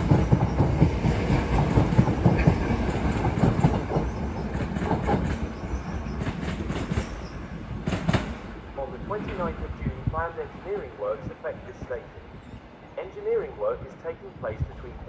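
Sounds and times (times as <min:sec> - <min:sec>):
train wheels clacking on track: 0:00.0 - 0:08.6
train low rumble: 0:00.0 - 0:15.0.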